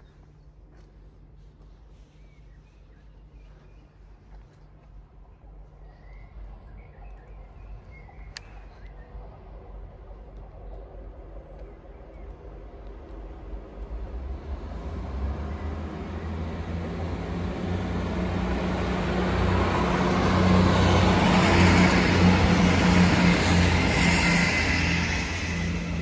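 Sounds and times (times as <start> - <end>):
diesel train passing: 0.0 - 26.0.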